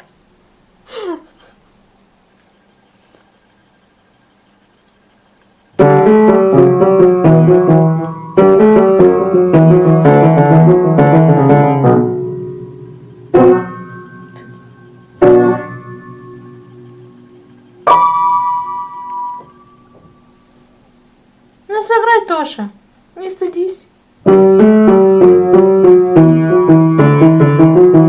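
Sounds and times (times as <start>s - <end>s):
piano notes and chords: 5.8s - 20.5s, 24.2s - 28.0s.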